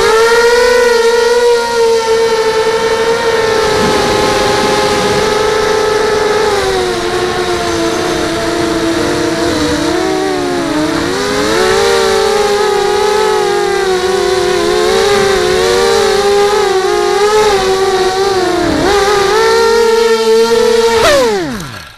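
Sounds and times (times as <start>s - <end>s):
quadcopter motors whining: 0.0s - 21.9s.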